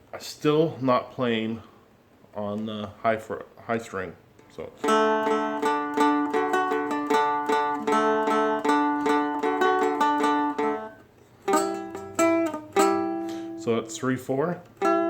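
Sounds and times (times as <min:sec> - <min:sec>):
dulcimer picked notes: 0:04.8 - 0:15.0.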